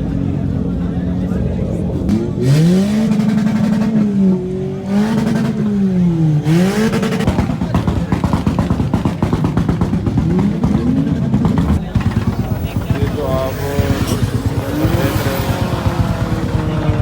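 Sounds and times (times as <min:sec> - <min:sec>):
car engine revving: 0:00.0 - 0:17.0
rapid uneven exhaust burble: 0:00.0 - 0:17.0.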